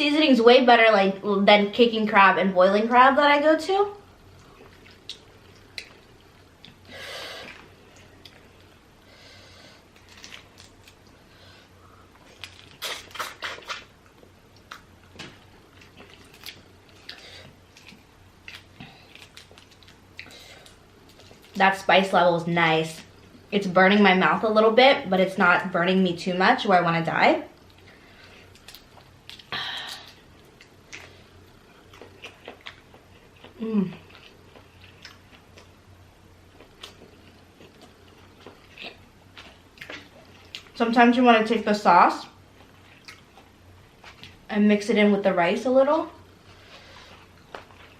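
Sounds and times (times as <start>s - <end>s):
faint low hum: 0.0s - 47.9s
wet chewing: 12.2s - 21.6s, 28.4s - 35.8s
quiet chewing: 27.6s - 35.8s, 36.5s - 40.8s, 42.5s - 44.4s.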